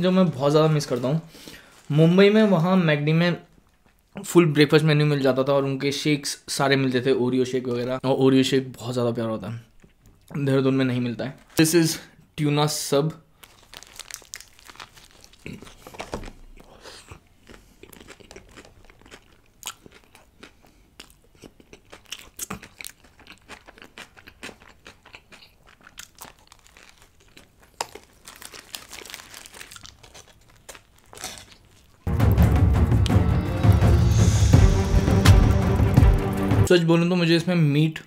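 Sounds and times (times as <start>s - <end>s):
paper wrapper rustling: 0.2s - 2.6s, 13.4s - 16.7s, 26.2s - 32.0s
man chewing and biting: 13.8s - 32.1s
loud music: 32.1s - 36.7s.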